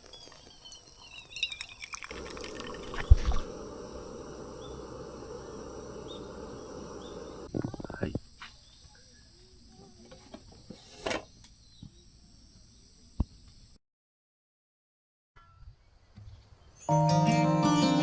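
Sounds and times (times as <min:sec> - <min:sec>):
crickets and insects chirping: 0:00.0 - 0:13.8
low rushing noise: 0:02.3 - 0:07.5.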